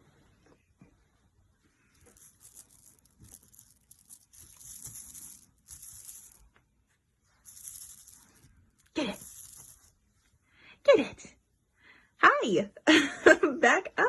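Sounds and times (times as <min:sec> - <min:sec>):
crinkling and rustling: 0:00.0 - 0:10.3.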